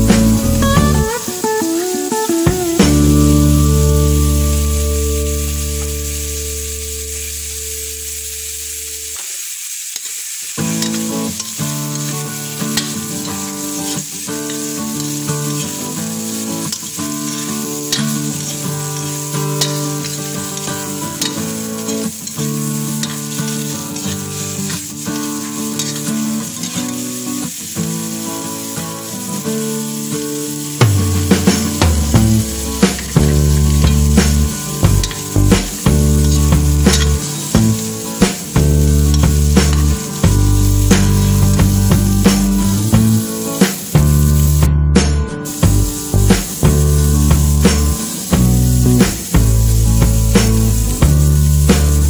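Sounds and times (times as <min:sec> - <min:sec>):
background music: 0:00.0 - 0:07.3, 0:30.8 - 0:52.0
vegetables sizzling in hot oil: 0:00.0 - 0:52.0
spatula scraping wok: 0:08.1 - 0:52.0.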